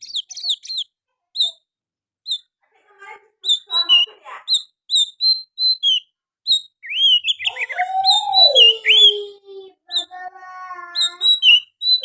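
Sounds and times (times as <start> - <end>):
sharp bird chirps and whistles: 0.0 - 1.6, 2.2 - 2.6, 3.4 - 9.2, 10.9 - 12.0
bird singing varied song: 0.0 - 2.6, 3.4 - 12.0.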